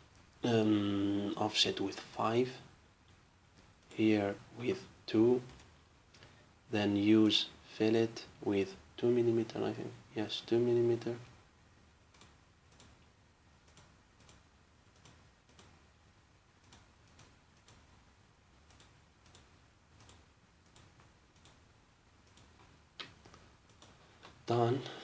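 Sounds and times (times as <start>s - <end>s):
computer mouse clicks: 12.1s - 15.8s, 16.6s - 18.0s, 18.6s - 21.6s.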